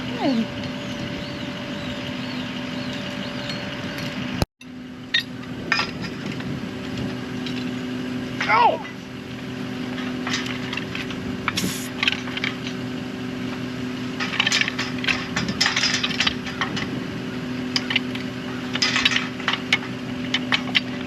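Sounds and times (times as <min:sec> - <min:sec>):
mechanical hum: 0:00.0 - 0:21.0
metal pipes clanking: 0:05.1 - 0:06.4, 0:09.8 - 0:12.8, 0:13.5 - 0:21.0.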